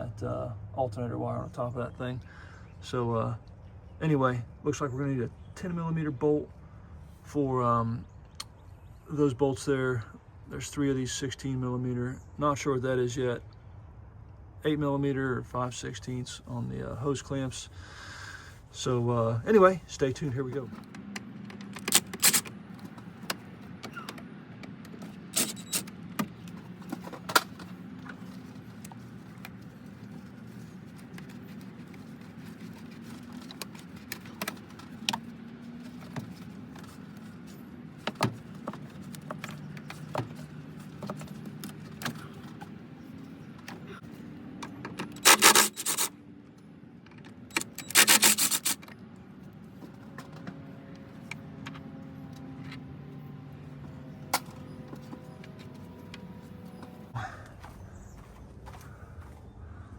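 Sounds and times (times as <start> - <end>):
tools clicking and rattling: 20.7 - 30.3, 44.6 - 46.1, 47.1 - 49.0
rapid clicking bursts: 45.2 - 46.1, 47.6 - 48.8.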